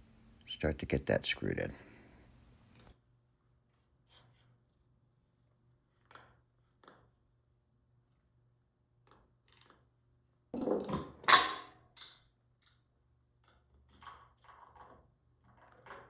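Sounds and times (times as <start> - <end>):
metal tools clinking and rattling: 10.9 - 12.8.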